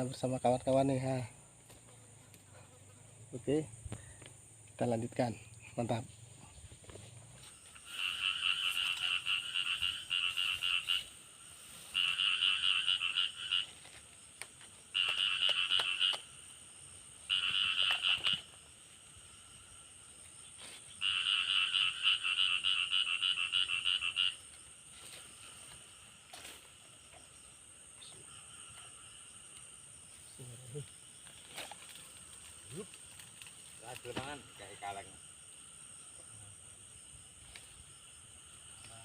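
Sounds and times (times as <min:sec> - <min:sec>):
frog calling in pulsed trills: 0:07.8 - 0:11.2, 0:11.9 - 0:13.7, 0:14.9 - 0:16.3, 0:17.3 - 0:18.6, 0:21.0 - 0:24.5.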